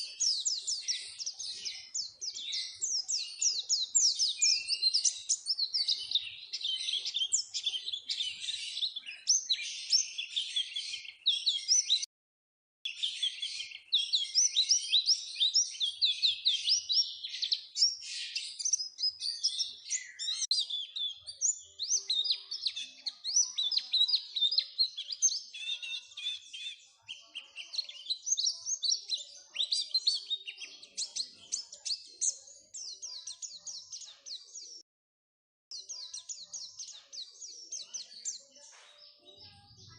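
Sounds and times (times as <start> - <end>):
bird twittering song: 0.0 - 12.1, 12.9 - 34.8, 35.7 - 39.9.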